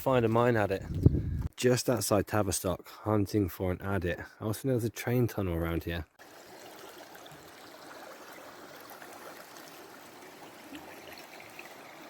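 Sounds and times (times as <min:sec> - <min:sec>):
running water rushing: 0:06.2 - 0:12.0.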